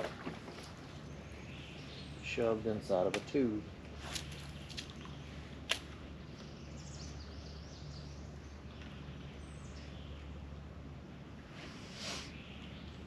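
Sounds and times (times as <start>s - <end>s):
low hum: 3.5s - 13.0s.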